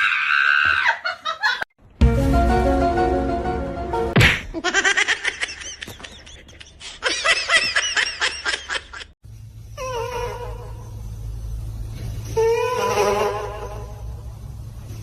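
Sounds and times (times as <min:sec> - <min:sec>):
person laughing hard: 0:04.4 - 0:09.1.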